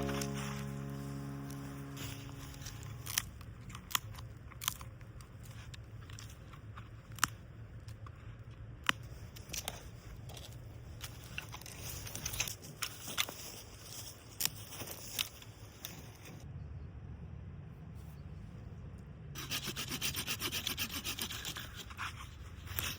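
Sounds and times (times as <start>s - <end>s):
faint low rumble: 0.0s - 12.5s.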